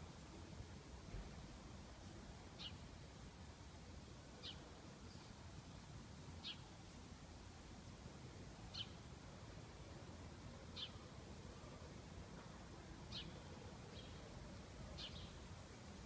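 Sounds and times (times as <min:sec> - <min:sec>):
faint background hiss: 0:00.0 - 0:16.0
bird chirping: 0:13.1 - 0:14.2, 0:15.0 - 0:15.4.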